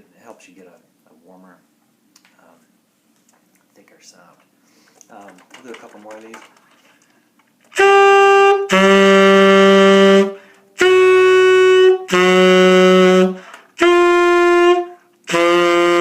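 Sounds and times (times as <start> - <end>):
tenor saxophone held notes: 7.7 - 16.0.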